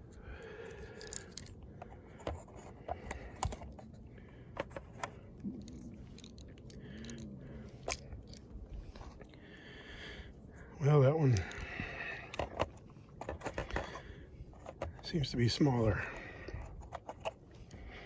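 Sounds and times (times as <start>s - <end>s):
small parts clicking and rattling: 0.0s - 9.4s, 11.2s - 17.7s.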